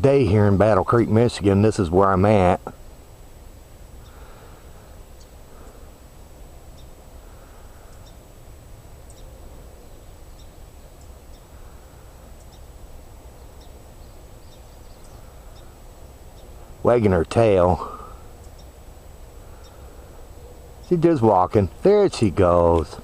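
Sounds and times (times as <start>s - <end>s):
low wind rumble: 0.0s - 23.0s
faint bird chirps: 3.9s - 6.0s, 6.6s - 8.3s, 9.0s - 16.8s, 17.8s - 21.2s.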